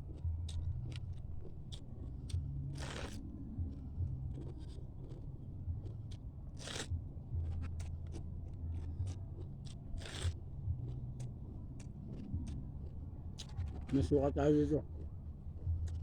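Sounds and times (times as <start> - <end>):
steady low hum: 0.0 - 16.0
person chewing crunchy food: 3.8 - 6.0.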